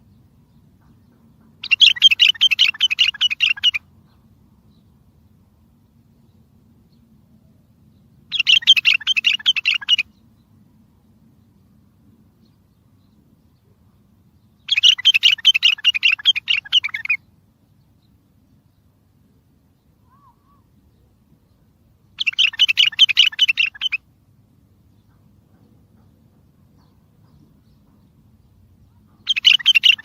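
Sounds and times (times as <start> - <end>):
bird singing chattering notes: 0.5 - 4.9, 8.2 - 10.3, 14.4 - 17.2, 20.9 - 24.0, 24.8 - 30.0.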